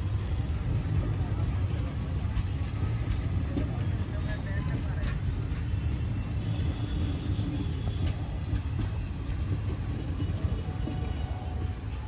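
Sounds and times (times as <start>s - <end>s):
train wheels rumbling on rails: 0.0s - 12.0s
wheels clicking over rail joints: 0.0s - 12.0s.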